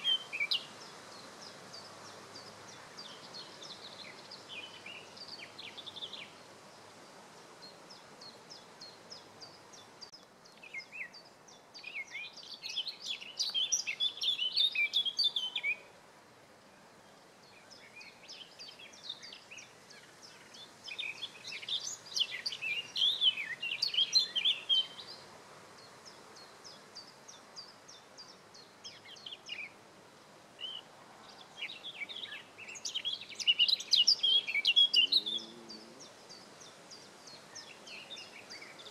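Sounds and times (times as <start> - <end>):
songbird warbling: 31.6 - 38.9.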